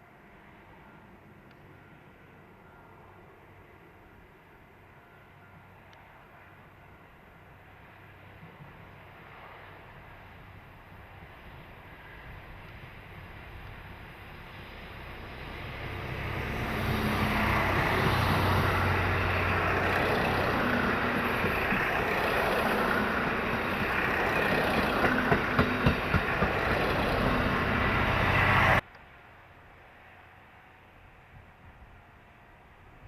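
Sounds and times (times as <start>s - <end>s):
train passing: 0.0s - 33.0s
train wheel clicks: 19.9s - 27.5s.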